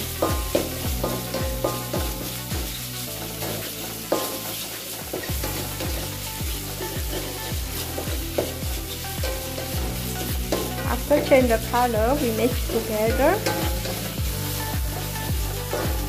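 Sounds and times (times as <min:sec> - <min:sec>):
background music with bass beat: 0:00.0 - 0:16.0
beef sizzling in oil: 0:00.0 - 0:16.0
stirring knocks on pan: 0:09.2 - 0:11.7.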